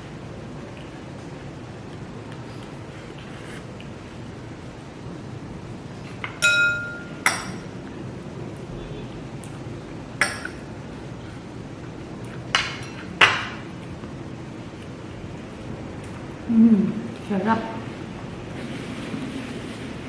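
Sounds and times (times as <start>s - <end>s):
utensil tapping on dishes: 6.2s - 7.6s, 10.2s - 10.6s, 12.5s - 13.6s.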